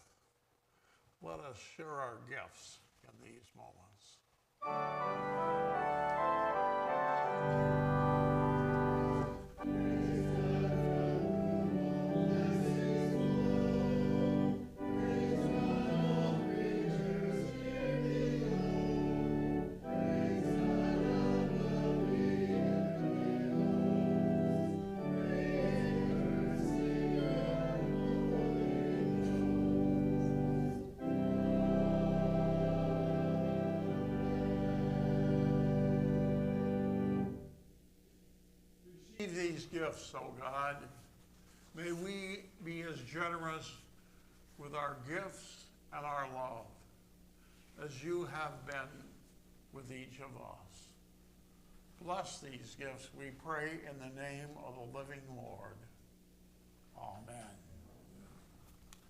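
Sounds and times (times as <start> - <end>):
organ chords: 4.6 - 41.1, 41.7 - 46.8
people singing: 9.1 - 30.6, 31.5 - 35.8.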